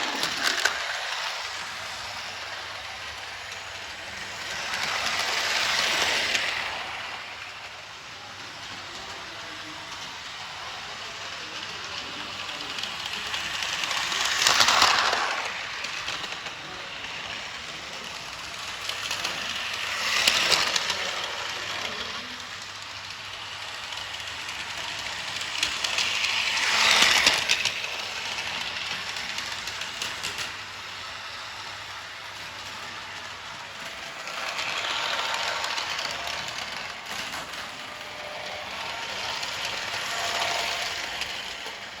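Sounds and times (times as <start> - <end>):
toy train rattling on track: 0.0 - 42.0.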